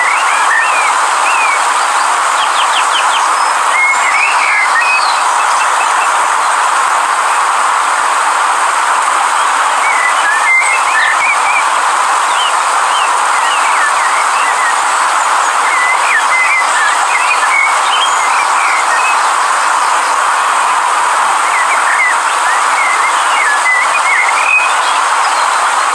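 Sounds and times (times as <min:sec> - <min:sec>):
small birds chirping: 0:00.0 - 0:06.2, 0:09.4 - 0:20.3
river rushing: 0:00.0 - 0:25.9.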